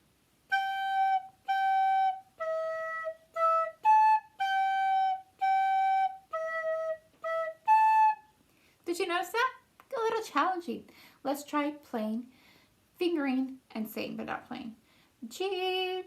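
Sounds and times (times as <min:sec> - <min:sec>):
recorder playing notes: 0:00.5 - 0:08.3.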